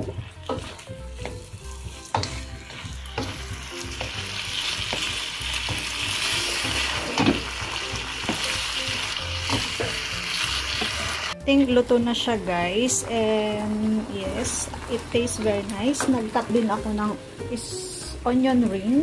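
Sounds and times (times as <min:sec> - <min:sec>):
spatula knocking and scraping pan: 0:00.0 - 0:08.6, 0:09.3 - 0:10.1
meat sizzling in a wok: 0:00.0 - 0:11.4.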